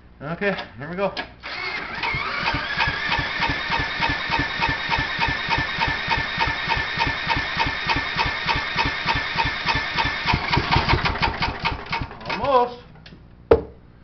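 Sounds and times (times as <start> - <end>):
electric drill whining: 1.4 - 11.5
engine turning over: 1.4 - 12.5.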